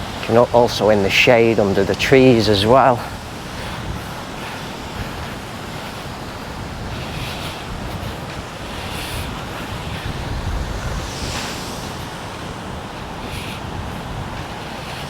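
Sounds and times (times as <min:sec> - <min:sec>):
small waves washing onto beach: 0:00.0 - 0:15.0
wind on microphone: 0:00.0 - 0:15.0.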